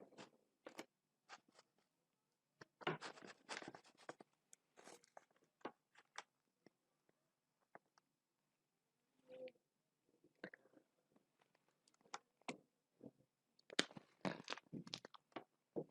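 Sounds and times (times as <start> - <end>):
snack crunching and clicks: 13.6 - 15.4.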